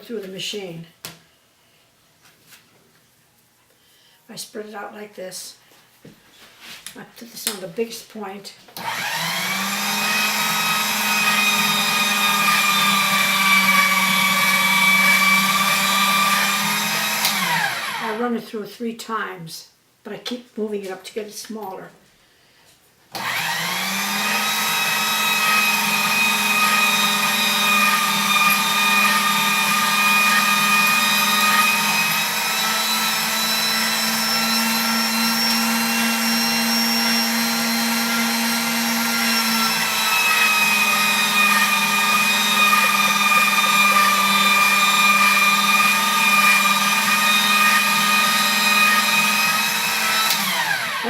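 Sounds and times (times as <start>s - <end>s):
pasta machine motor whine: 8.8s - 18.1s, 23.2s - 51.0s.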